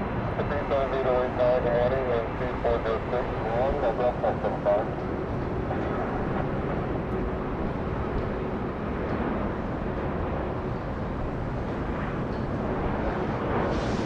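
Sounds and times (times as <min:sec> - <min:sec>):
distant jet airliner engines: 0:00.0 - 0:14.0.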